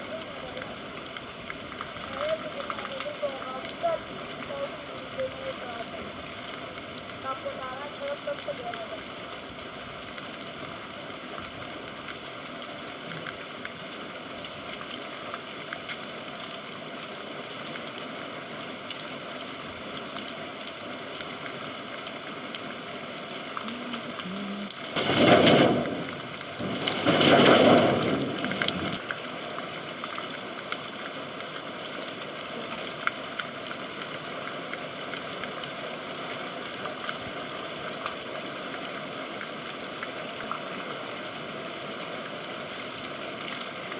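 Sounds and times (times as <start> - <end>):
steady rain hiss: 0.0 - 43.9
rushing surges: 23.6 - 29.0.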